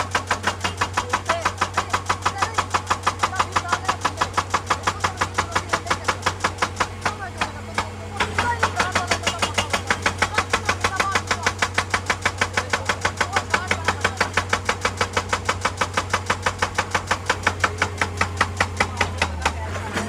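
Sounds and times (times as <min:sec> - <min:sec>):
diesel engine hum: 0:00.0 - 0:20.0
hydraulic rock breaker hammering: 0:00.0 - 0:20.0.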